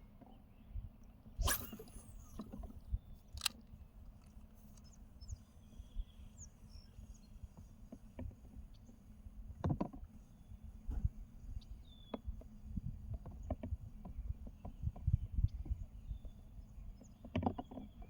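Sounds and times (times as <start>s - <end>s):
faint bird chirps: 0.3s - 3.3s, 4.6s - 7.7s
sharp clicks: 1.4s - 4.9s.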